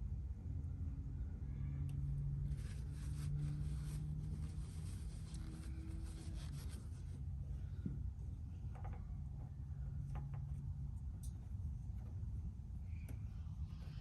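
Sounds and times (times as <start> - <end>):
steady low hum: 0.0 - 14.0
rubbing and scratching of dipstick: 2.4 - 7.3.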